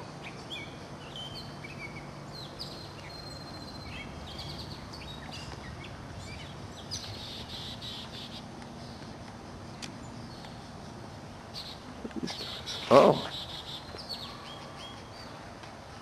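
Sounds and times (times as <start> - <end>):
steady outdoor hiss: 0.0 - 16.0
birds chirping and whistling: 0.2 - 9.0, 11.5 - 15.4.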